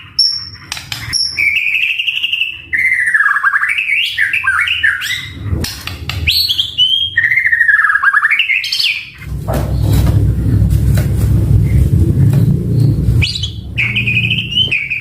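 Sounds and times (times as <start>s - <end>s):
bird singing whistled phrases: 0.2s - 5.4s, 6.3s - 9.2s, 12.8s - 15.0s
low rumble: 5.2s - 6.5s, 9.2s - 14.8s.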